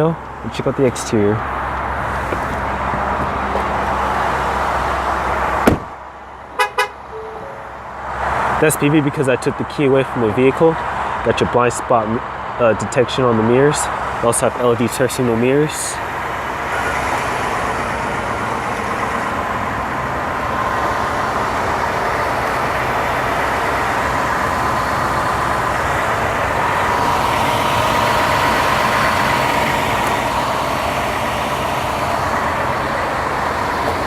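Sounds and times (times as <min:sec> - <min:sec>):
pickup truck engine idling: 0:12.1 - 0:34.0.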